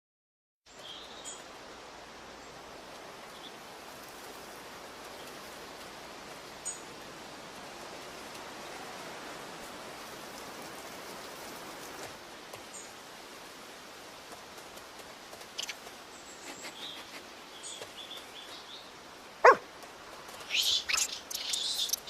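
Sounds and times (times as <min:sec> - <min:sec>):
steady hiss: 0:00.7 - 0:22.0
faint high chirps and clicks: 0:15.4 - 0:18.7, 0:20.3 - 0:22.0.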